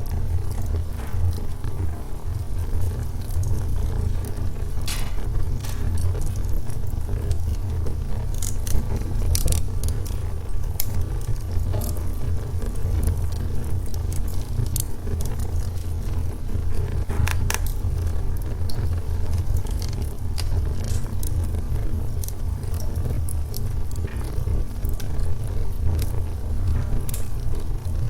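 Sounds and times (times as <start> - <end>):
fire crackles and pops: 0.0 - 28.0
fire rumbling: 0.0 - 28.0.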